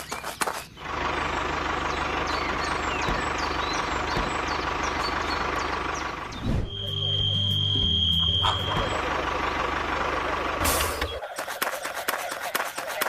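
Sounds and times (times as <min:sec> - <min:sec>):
vehicle engine idling: 0:00.7 - 0:11.3
short high chirps: 0:06.6 - 0:08.9.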